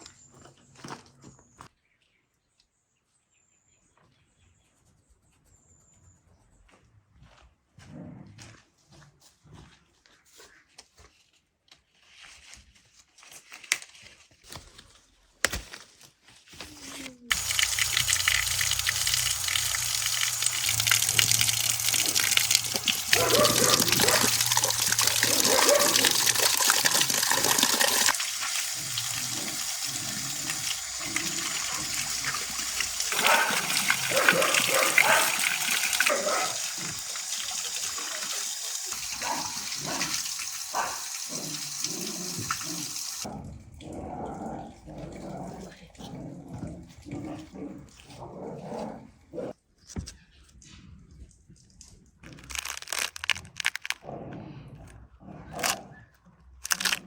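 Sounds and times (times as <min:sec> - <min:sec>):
water running hard from a tap: 0:17.3 - 0:43.3.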